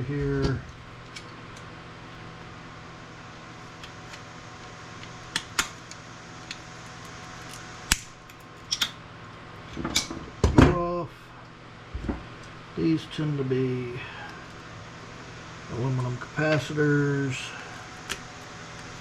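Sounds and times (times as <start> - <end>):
steady background hum: 0.0 - 19.0
clicks of small parts handled: 7.0 - 8.9.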